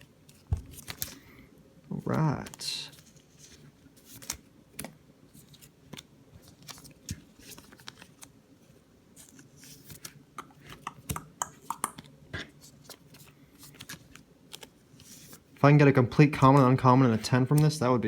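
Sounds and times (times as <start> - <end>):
trading cards clicking: 10.4 - 12.1.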